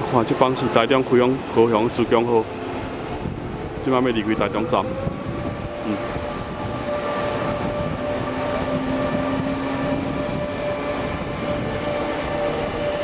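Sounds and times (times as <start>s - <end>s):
train moving off: 0.0s - 13.0s.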